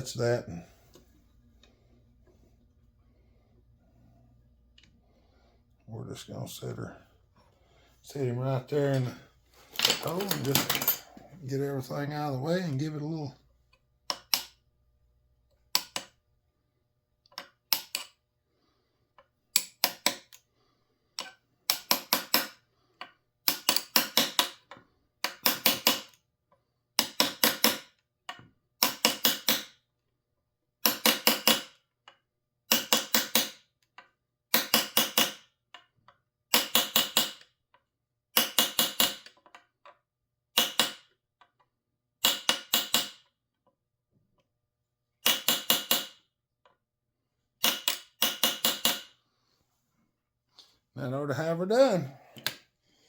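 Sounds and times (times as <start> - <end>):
hammer tapping metal punch: 38.4 - 39.3, 42.2 - 43.2, 45.2 - 46.2, 47.6 - 49.1.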